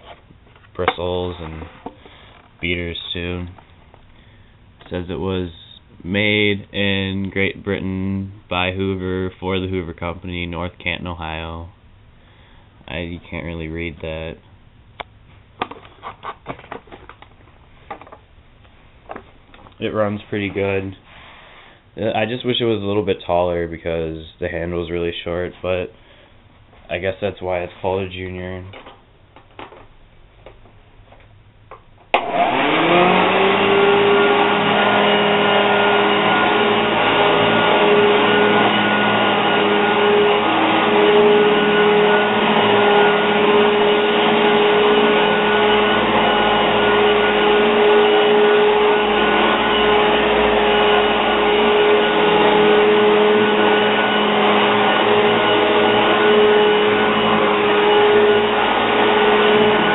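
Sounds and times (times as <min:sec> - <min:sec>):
vacuum cleaner motor running: 0:32.2 - 0:59.9.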